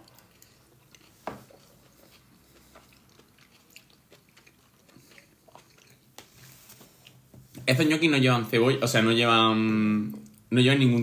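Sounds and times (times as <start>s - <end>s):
wet chewing sounds: 0.0s - 7.3s.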